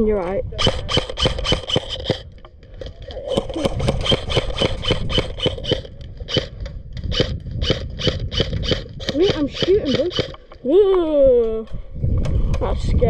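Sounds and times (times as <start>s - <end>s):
airsoft rifle shots: 0.6s - 2.3s, 3.2s - 10.4s.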